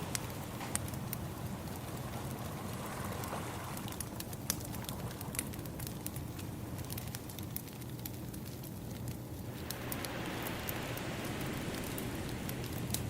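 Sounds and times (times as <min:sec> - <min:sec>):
wood fire crackling and popping: 0:00.0 - 0:13.0
ocean waves rushing: 0:09.5 - 0:13.0.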